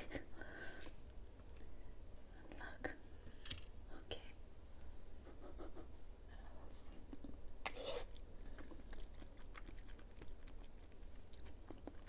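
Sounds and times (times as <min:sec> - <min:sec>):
wet chewing clicks: 0:08.5 - 0:12.0.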